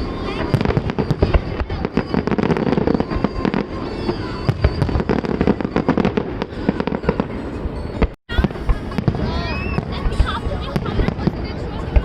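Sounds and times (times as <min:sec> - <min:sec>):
distant fireworks rumble: 0:00.0 - 0:12.0
fireworks bangs and pops: 0:00.0 - 0:12.0.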